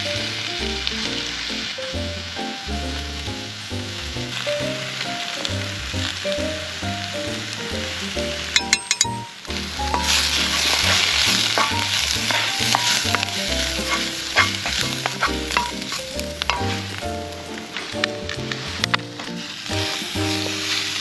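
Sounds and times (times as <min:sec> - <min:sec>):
background music with bass line: 0:00.0 - 0:21.0
food sizzling in a pan: 0:07.3 - 0:21.0.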